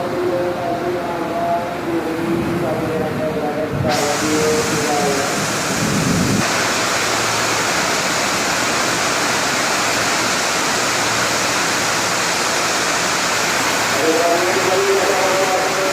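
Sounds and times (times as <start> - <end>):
heavy rain pouring: 0.0 - 15.9.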